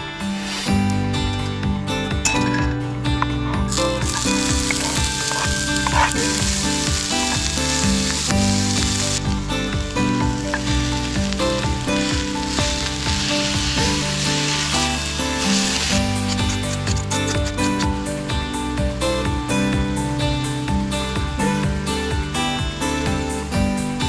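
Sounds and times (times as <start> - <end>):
background music: 0.0 - 24.0
food sizzling in a pan: 3.7 - 18.8.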